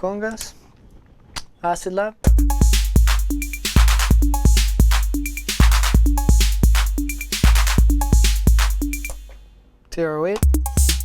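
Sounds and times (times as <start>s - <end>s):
drum machine beat: 2.3s - 9.5s, 10.4s - 11.0s.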